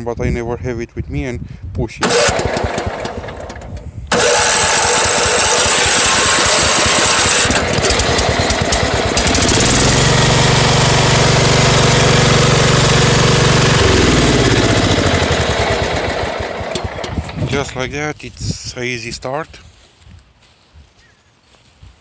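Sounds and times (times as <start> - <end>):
lawn tractor engine running: 2.0 - 17.8.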